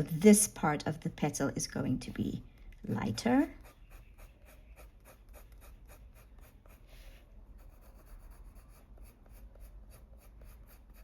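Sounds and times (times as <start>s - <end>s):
pencil scratching on paper: 3.4s - 11.0s.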